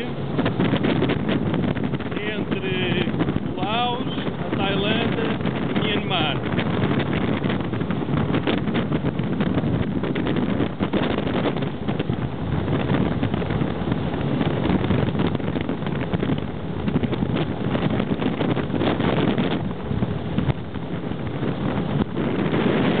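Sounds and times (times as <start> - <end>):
speedboat engine drone: 0.0 - 23.0
wind buffeting microphone: 0.0 - 23.0.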